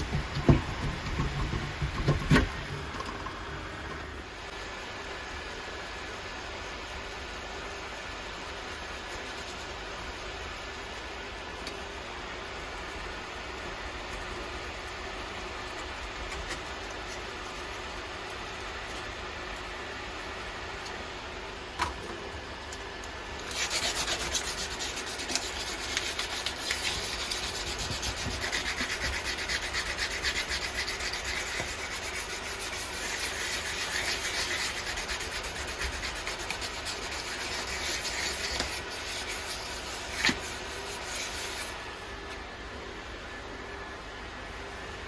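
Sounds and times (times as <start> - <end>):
hand rubbing like sanding: 23.4 - 41.8.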